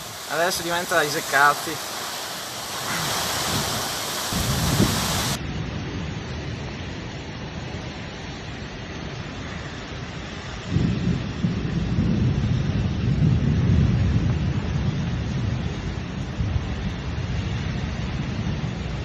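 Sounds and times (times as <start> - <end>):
thunder rumbling: 0.0 - 6.7, 10.6 - 19.0
heavy rain and wind: 0.0 - 19.0.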